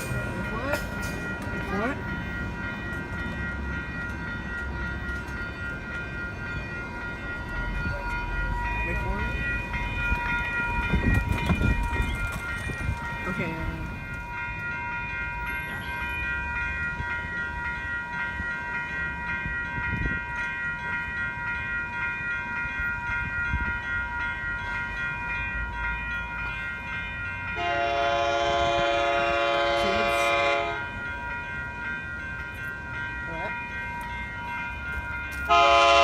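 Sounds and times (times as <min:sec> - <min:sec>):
train horn blast: 0:27.6 - 0:30.9, 0:35.5 - 0:36.0.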